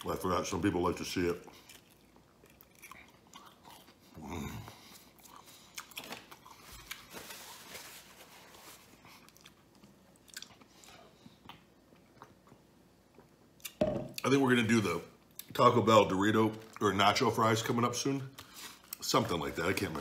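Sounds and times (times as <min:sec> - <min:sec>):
person chewing wetly: 0:01.4 - 0:07.1, 0:09.2 - 0:13.8.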